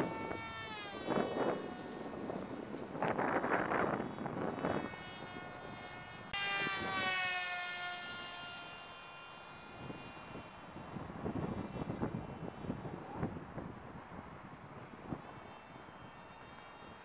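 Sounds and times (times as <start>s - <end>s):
wind buffeting microphone: 0.0s - 7.2s, 9.6s - 17.0s
rc airplane motor whining: 0.0s - 17.0s.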